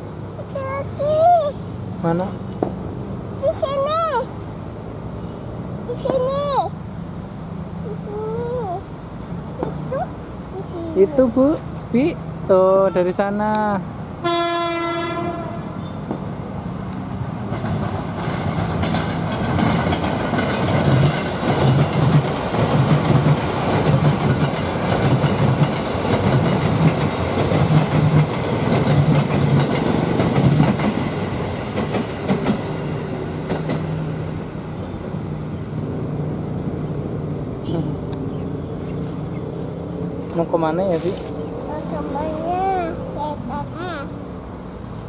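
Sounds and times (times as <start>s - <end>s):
train rumble: 0.0s - 45.0s
train horn: 14.2s - 15.8s
wheels clacking over rail joints: 17.4s - 34.4s.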